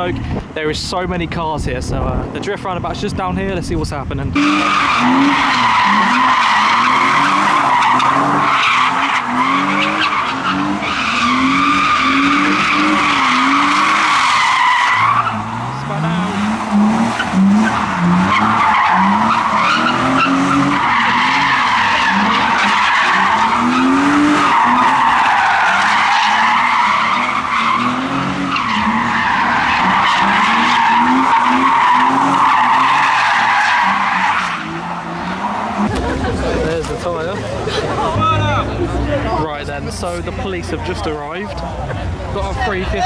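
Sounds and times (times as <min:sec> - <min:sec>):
car engine revving: 0:04.2 - 0:43.0
tyre screech: 0:04.4 - 0:15.8.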